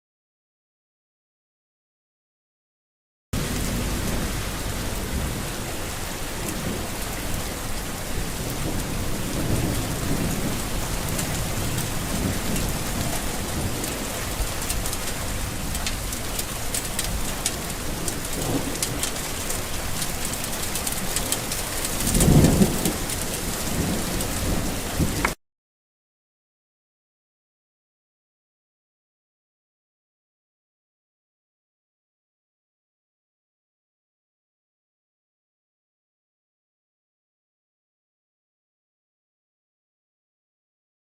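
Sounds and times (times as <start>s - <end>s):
rain falling: 3.4s - 25.4s
thunder rumbling: 3.4s - 25.4s.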